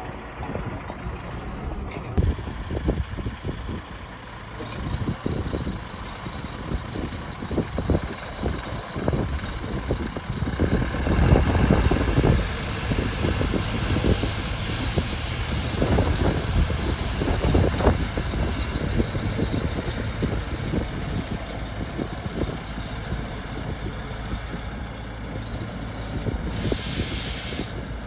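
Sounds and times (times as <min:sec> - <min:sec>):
tractor engine rumbling: 0:00.0 - 0:28.0
hiss: 0:11.5 - 0:18.9, 0:26.4 - 0:27.9.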